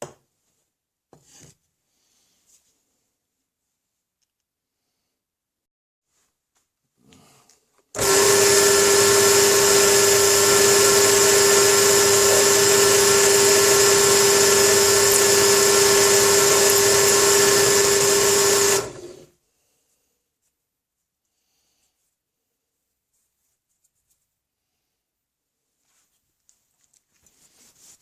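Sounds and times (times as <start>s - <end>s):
electric drill drilling metal: 8.0s - 19.3s.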